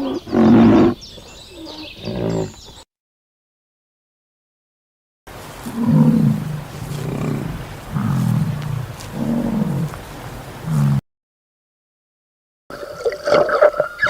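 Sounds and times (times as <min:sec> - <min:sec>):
lion roaring: 0:00.0 - 0:01.0, 0:01.7 - 0:02.6, 0:05.5 - 0:11.0.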